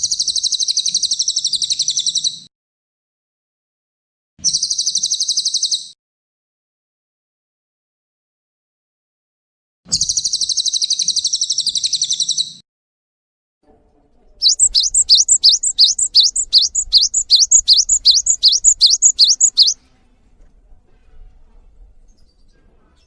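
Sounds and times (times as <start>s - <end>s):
songbird buzzy trill: 14.4s - 19.8s
songbird swooping notes: 14.4s - 19.8s.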